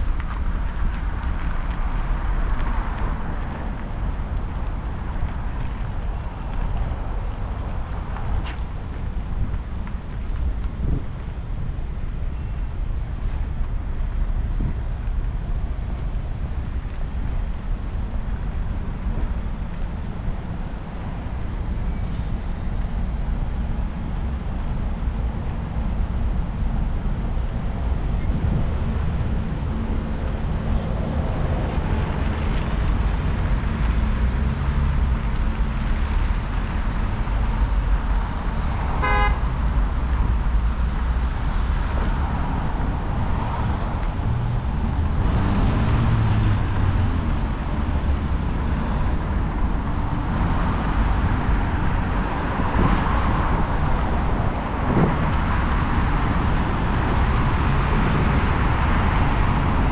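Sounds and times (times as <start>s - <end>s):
traffic rumble: 0.0s - 59.9s
car horn toot: 39.0s - 39.4s.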